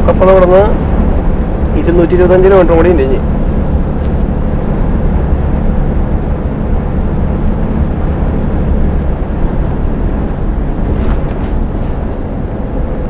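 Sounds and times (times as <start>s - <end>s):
truck diesel engine drone: 0.0s - 13.0s
tyre noise: 10.8s - 12.2s.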